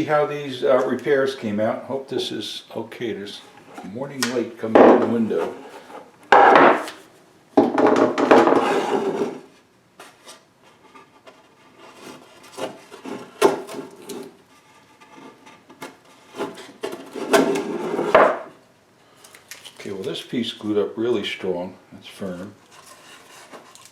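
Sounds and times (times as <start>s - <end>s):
wood scraping on wood: 3.4s - 7.1s, 8.2s - 18.6s, 22.2s - 23.9s.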